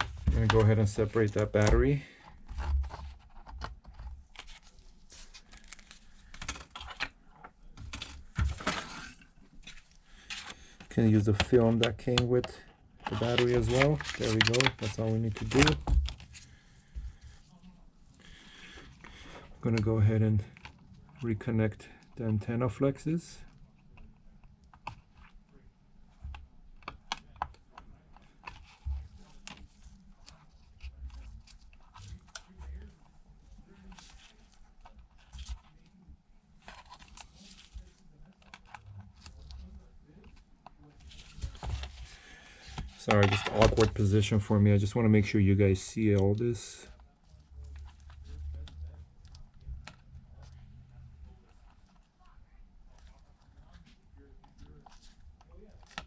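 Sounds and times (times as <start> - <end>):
plastic film crinkling and tearing: 4.6 - 6.9, 13.1 - 15.8.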